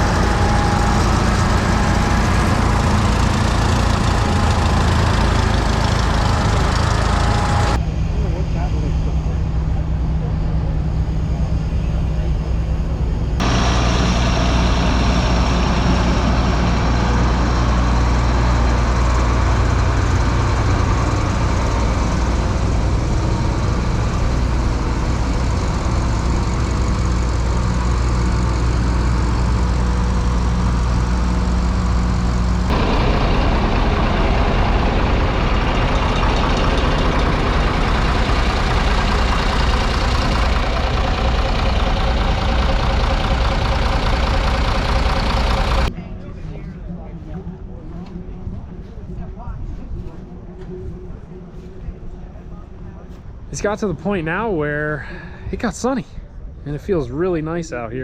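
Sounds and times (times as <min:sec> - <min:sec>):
tractor engine idling: 0:00.0 - 0:45.9.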